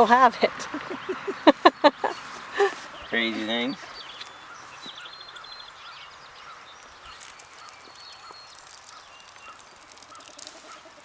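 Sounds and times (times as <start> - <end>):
high bird trill: 0.7 - 11.0.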